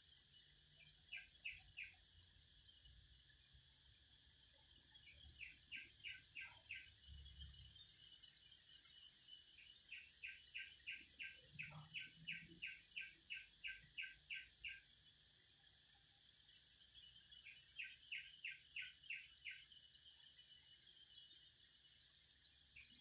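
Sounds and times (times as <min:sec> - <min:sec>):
cicadas droning: 0:04.4 - 0:19.8.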